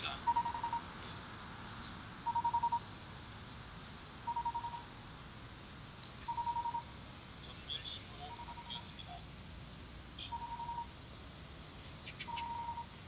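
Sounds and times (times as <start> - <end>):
crosswalk signal rapid beeps: 0.0 - 0.9, 2.2 - 2.9, 4.2 - 4.9, 6.2 - 7.0, 8.2 - 9.2, 10.2 - 11.0, 12.2 - 13.0
bird chirps: 0.2 - 0.9, 2.2 - 2.8, 4.3 - 4.9, 6.2 - 7.0, 7.8 - 9.2, 10.2 - 13.0.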